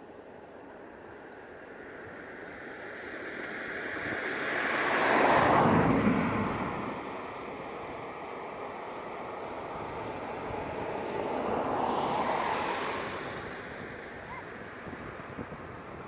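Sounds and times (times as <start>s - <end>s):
aircraft flying past: 4.4s - 7.4s, 9.4s - 15.3s.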